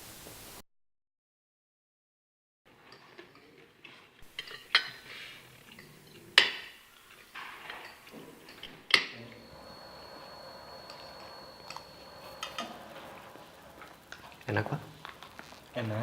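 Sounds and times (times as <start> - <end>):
cutlery clinking against plates: 4.3 - 13.2
faint hum with high whine: 7.8 - 16.0.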